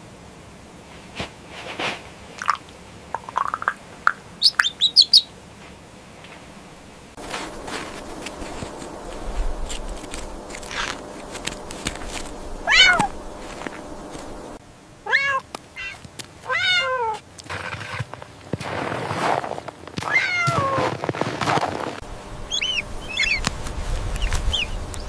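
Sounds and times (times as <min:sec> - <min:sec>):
animal meowing: 0:12.6 - 0:13.2, 0:15.1 - 0:17.2, 0:20.0 - 0:20.8.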